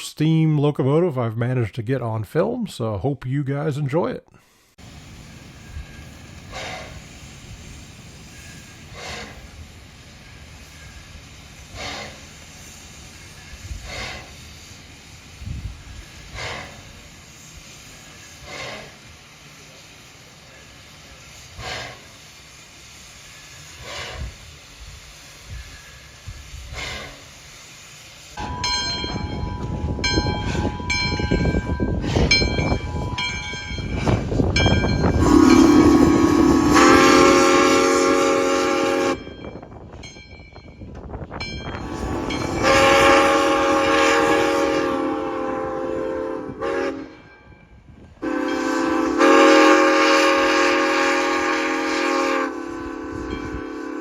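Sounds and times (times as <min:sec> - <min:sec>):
faint steam locomotive puffs: 0:04.4 - 0:40.2, 0:40.8 - 0:54.0
loud rushing steam: 0:04.5 - 0:40.0, 0:41.0 - 0:54.0
steam whistle blasts: 0:35.1 - 0:39.3, 0:41.8 - 0:47.3, 0:48.2 - 0:54.0.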